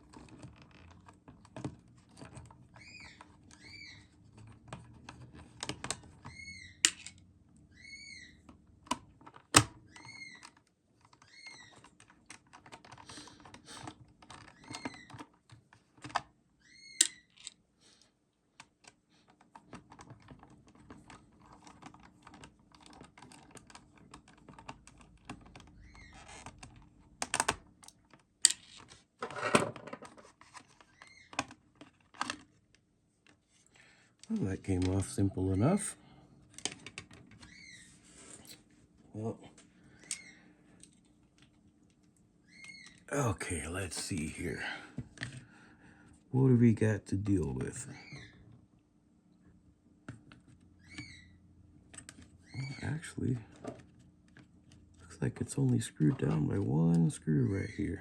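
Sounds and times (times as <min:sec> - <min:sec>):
plastic parts clicking and tapping: 0:04.3 - 0:07.2, 0:18.5 - 0:33.4, 0:36.5 - 0:37.5.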